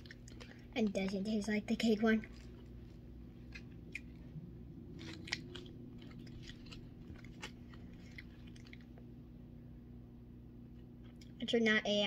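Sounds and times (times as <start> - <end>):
child chewing gummy candy: 0.0 - 9.1.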